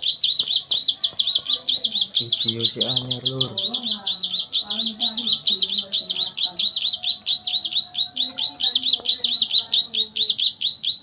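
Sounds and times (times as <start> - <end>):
songbird singing rapid high notes: 0.0 - 11.0.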